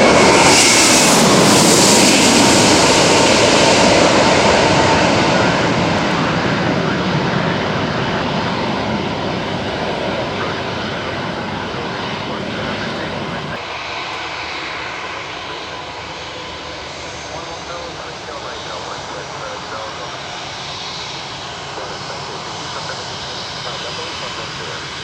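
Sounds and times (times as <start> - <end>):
jet airliner passing low: 0.0 - 25.0.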